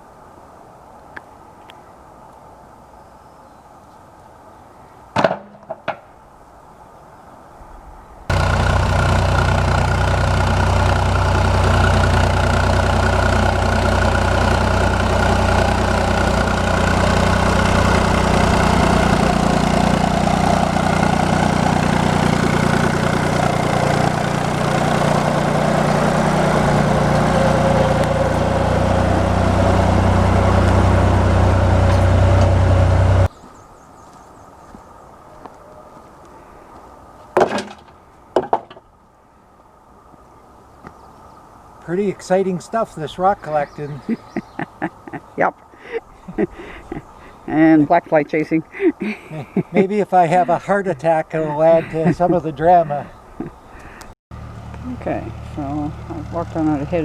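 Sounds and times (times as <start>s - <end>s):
tractor engine running loudly: 8.3s - 33.3s, 54.4s - 57.0s.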